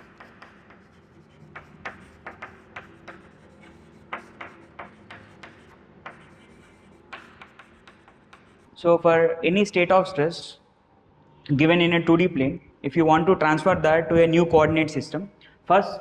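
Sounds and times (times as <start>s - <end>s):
pen tapping and scratching paper: 0.0s - 8.7s.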